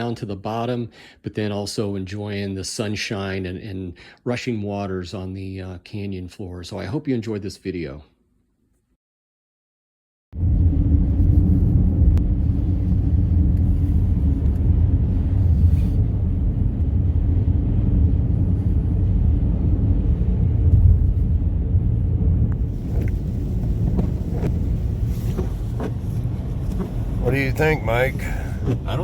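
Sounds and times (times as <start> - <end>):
wind buffeting microphone: 10.4 - 29.0.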